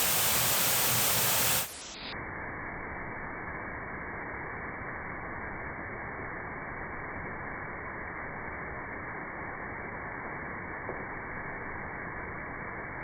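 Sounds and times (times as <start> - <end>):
waterfall rushing: 0.0 - 1.7.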